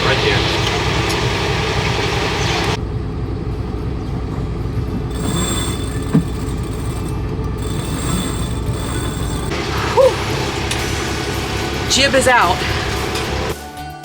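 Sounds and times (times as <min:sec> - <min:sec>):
boat engine chugging: 0:00.1 - 0:13.6
rising squeak: 0:05.1 - 0:13.6.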